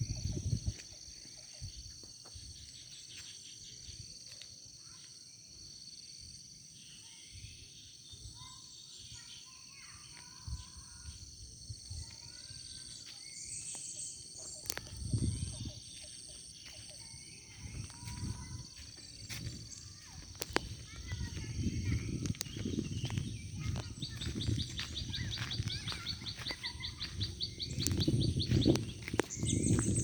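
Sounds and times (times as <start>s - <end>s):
high-pitched insect drone: 0.0s - 30.0s
birds chirping: 12.2s - 30.0s.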